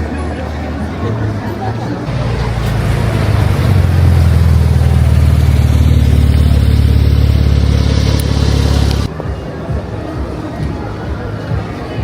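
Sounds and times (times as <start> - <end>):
car engine droning: 2.1 - 9.1.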